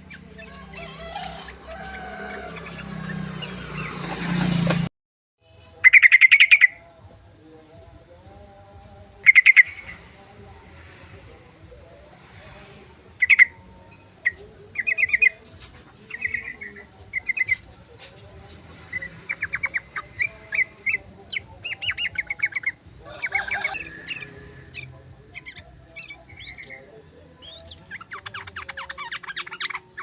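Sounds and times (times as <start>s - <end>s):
bird chattering and trilling: 5.8s - 6.9s, 9.2s - 10.2s, 18.9s - 30.0s.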